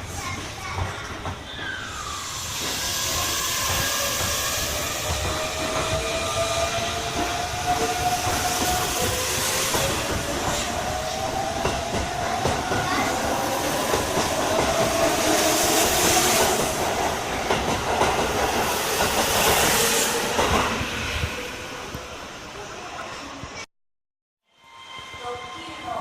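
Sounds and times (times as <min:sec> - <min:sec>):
train rumble: 0:00.0 - 0:23.6
train wheels clacking: 0:00.2 - 0:20.8.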